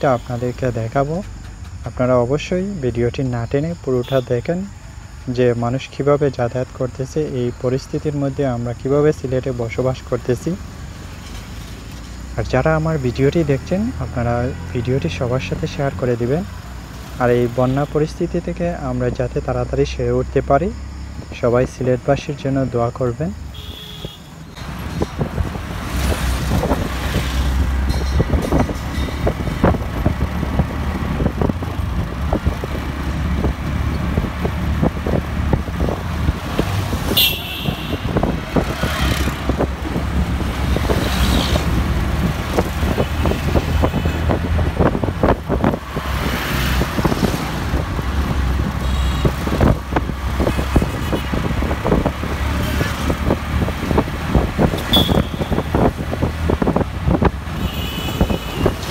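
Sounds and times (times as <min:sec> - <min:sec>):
vehicle engines rumbling: 0:00.0 - 0:58.9
car horn toot: 0:23.5 - 0:24.4, 0:37.1 - 0:38.3, 0:48.8 - 0:49.4, 0:54.8 - 0:55.9, 0:57.6 - 0:58.8.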